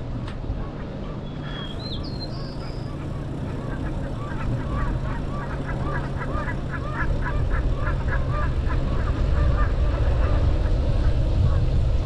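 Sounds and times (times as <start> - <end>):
birds honking calls: 0.6 - 11.1
wind on microphone: 7.0 - 12.0.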